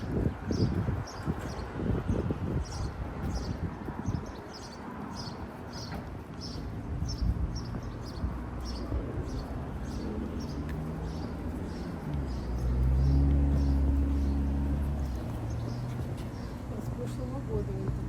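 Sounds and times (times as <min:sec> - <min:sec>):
outdoor background rush: 0:00.0 - 0:18.0.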